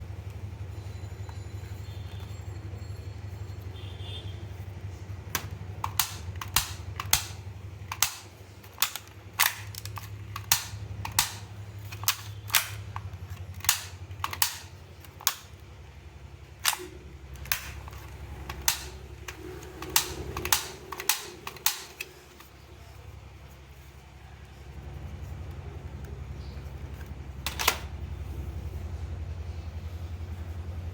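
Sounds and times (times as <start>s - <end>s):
low hum: 0.0s - 30.9s
toy shotgun firing: 5.3s - 15.5s, 16.6s - 22.2s, 27.5s - 27.9s.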